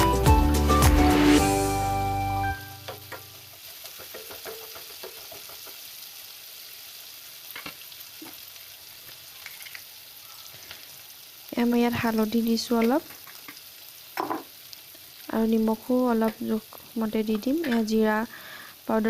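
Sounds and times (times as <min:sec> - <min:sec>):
background music: 0:00.0 - 0:03.3
food sizzling in oil: 0:01.0 - 0:19.0
spatula scraping and tapping: 0:02.9 - 0:05.8.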